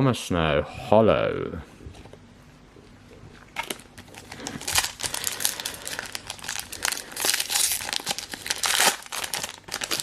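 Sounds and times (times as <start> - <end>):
foil wrapper crinkling: 3.6 - 10.0.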